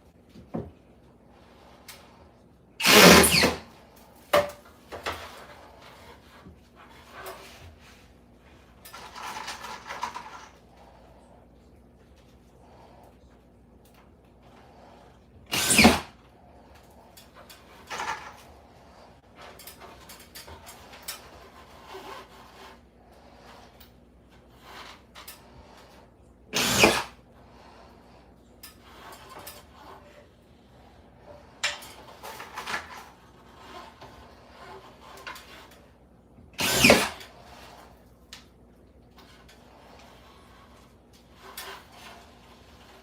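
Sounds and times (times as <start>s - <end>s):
power drill bursts: 2.8s - 3.6s, 15.5s - 16.1s, 26.6s - 27.2s, 36.6s - 37.2s.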